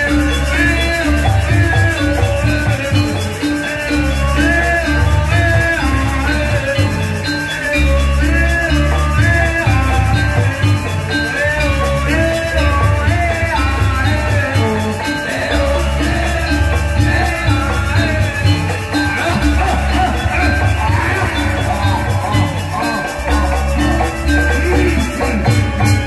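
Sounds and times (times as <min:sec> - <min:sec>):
gamelan playing: 0:00.0 - 0:26.0.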